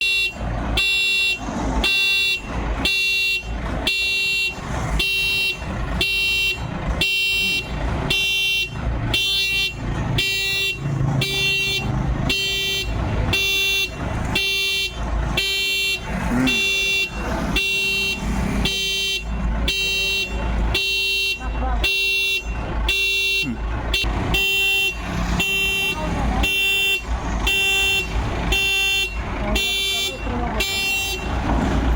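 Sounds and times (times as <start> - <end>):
reversing alarm beeping: 0.0 - 31.6
low engine rumble: 0.0 - 31.9.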